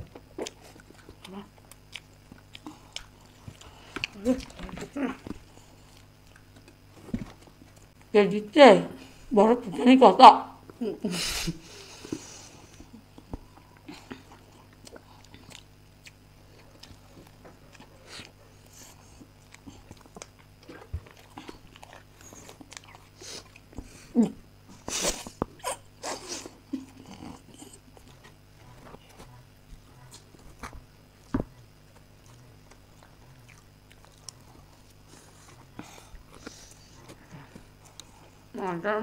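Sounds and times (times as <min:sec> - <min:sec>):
people chewing cake: 0:00.0 - 0:08.1, 0:10.6 - 0:38.6.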